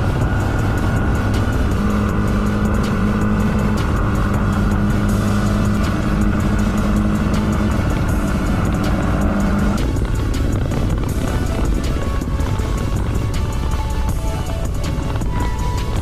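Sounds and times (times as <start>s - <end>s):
motorcycle engine cruising: 0.0s - 16.0s
wind rushing over microphone: 0.0s - 16.0s.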